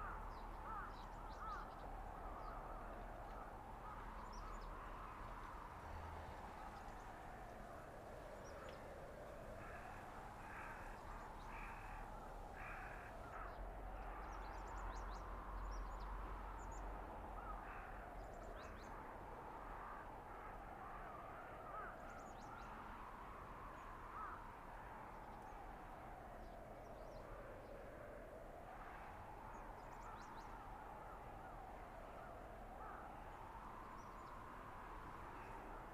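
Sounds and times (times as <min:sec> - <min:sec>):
crow cawing: 0:00.0 - 0:04.7, 0:09.6 - 0:14.4, 0:17.4 - 0:18.0, 0:19.9 - 0:22.6, 0:24.1 - 0:24.4, 0:32.8 - 0:33.2
blizzard wind howling: 0:00.0 - 0:35.9.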